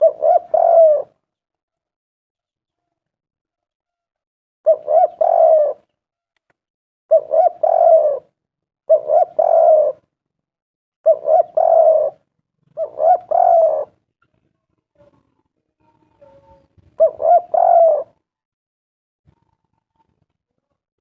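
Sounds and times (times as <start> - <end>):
dove cooing: 0.0 - 1.2, 4.7 - 5.9, 7.1 - 10.1, 11.0 - 14.0, 16.2 - 18.2.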